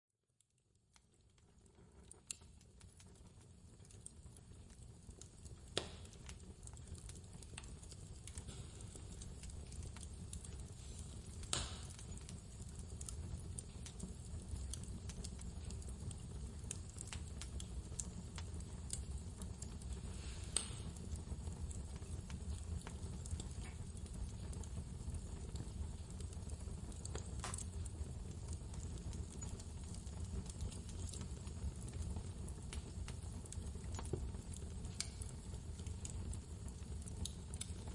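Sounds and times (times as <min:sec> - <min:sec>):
wood fire crackling: 0:00.4 - 0:37.9.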